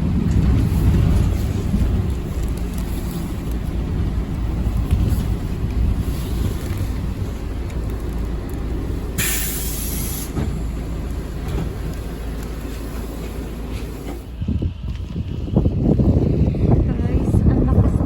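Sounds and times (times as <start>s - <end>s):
bus engine rumble: 0.0s - 18.0s
compressed-air hiss: 9.2s - 10.4s.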